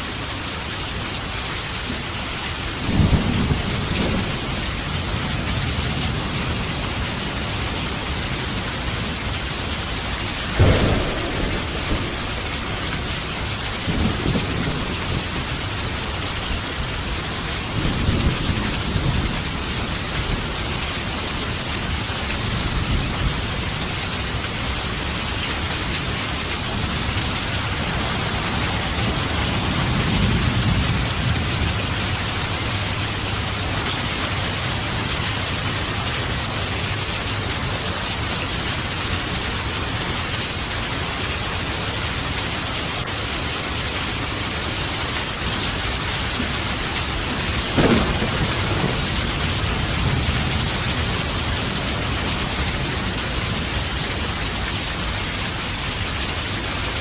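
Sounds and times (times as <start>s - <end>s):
heavy rain: 0.0s - 57.0s
low rolling thunder: 2.6s - 39.4s, 44.2s - 56.0s
sharp thunder clap: 10.5s - 15.5s, 47.6s - 51.2s.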